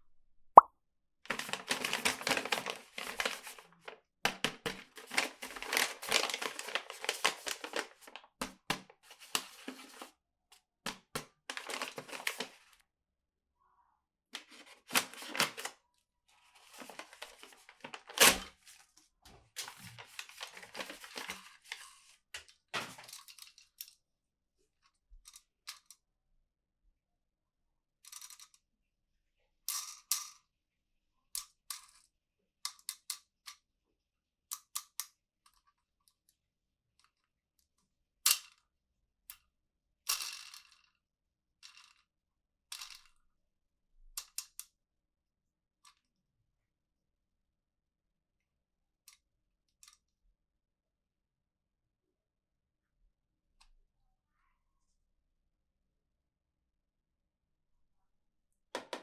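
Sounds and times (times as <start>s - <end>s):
packaging tearing and crinkling: 5.0s - 8.0s.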